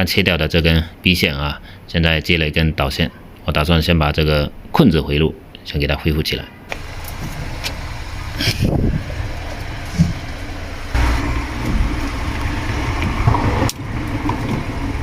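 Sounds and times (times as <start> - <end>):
vehicle engine running: 6.7 - 15.0.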